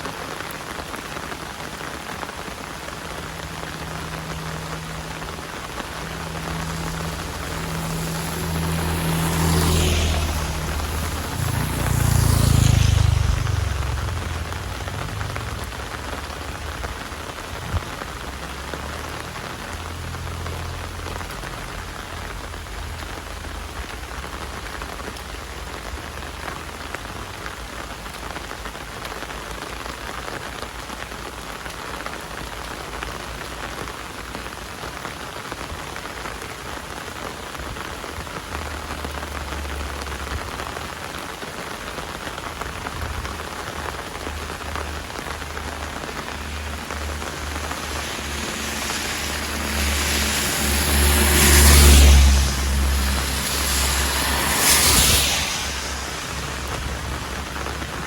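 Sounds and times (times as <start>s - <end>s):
heavy rain falling: 0.0s - 58.0s
low rush: 45.0s - 58.0s.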